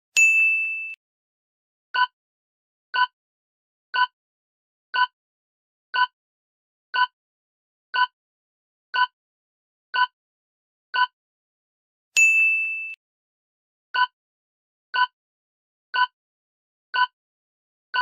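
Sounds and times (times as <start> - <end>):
countdown timer ticks: 5.0 - 5.2, 6.0 - 6.2, 7.0 - 7.2, 8.0 - 8.2, 9.0 - 9.2, 10.0 - 10.2, 14.0 - 14.2, 16.0 - 16.2, 17.0 - 17.2.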